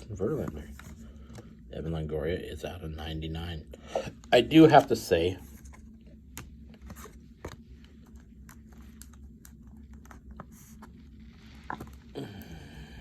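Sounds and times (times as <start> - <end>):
low steady hum: 0.0 - 13.0
trading cards being shuffled: 5.4 - 12.2.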